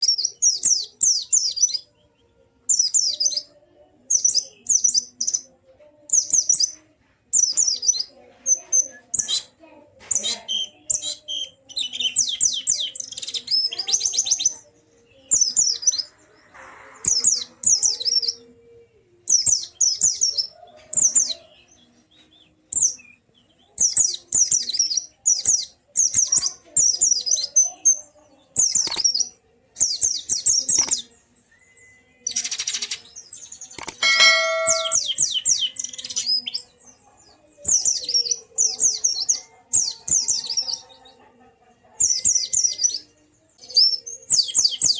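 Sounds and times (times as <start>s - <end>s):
bird chattering song: 28.6s - 29.3s, 29.9s - 31.1s, 33.6s - 36.6s.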